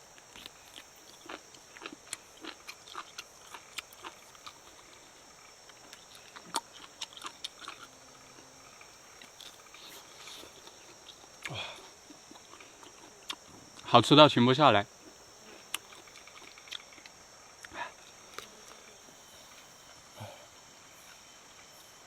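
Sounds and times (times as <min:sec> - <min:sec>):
person chewing: 0:00.3 - 0:05.0, 0:05.6 - 0:08.5, 0:09.2 - 0:13.5, 0:15.7 - 0:17.8.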